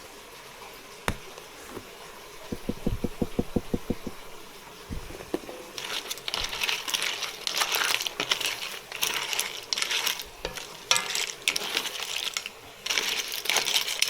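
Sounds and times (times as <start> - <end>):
kitchen items clattering: 1.1 - 14.0.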